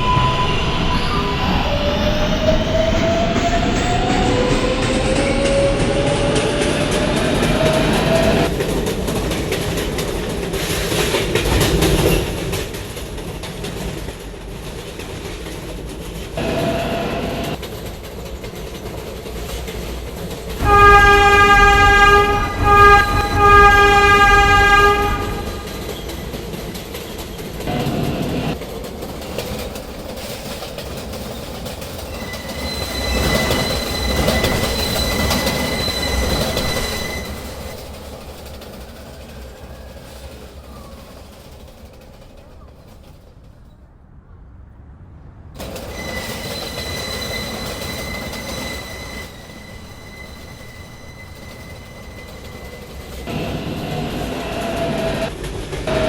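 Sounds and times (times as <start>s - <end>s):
subway train rumbling: 0.0s - 56.0s
train horn blasts: 16.4s - 17.6s, 20.6s - 26.0s
thin wheel squeal: 32.0s - 41.5s, 45.6s - 55.3s.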